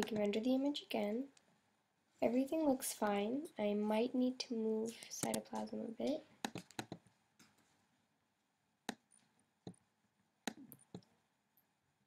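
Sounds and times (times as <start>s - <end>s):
computer mouse clicks: 4.9s - 7.6s, 10.4s - 11.1s.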